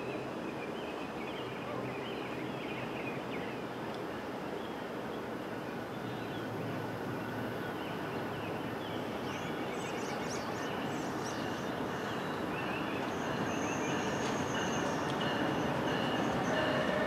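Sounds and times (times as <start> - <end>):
train rumble: 5.3 - 17.0
birds chirping: 7.2 - 17.0.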